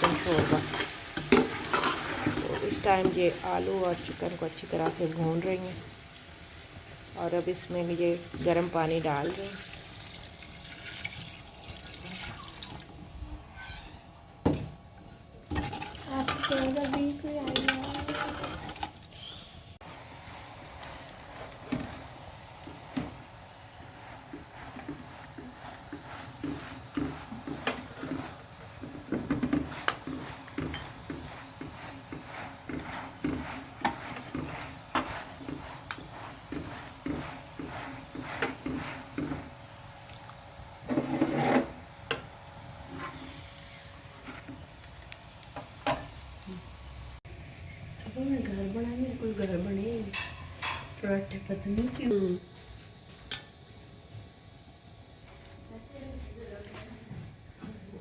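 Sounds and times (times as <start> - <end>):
spoon stirring and scraping pot: 0.0 - 5.5, 15.4 - 19.0, 20.7 - 39.6, 40.2 - 44.8, 49.3 - 52.0
faint sizzle: 0.0 - 58.0.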